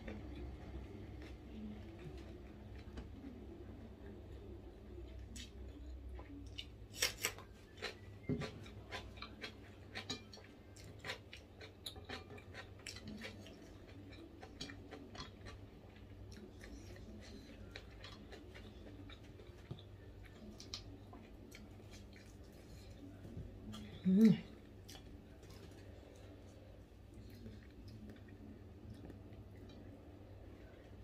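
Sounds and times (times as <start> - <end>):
person chewing crunchy food: 5.3 - 29.9.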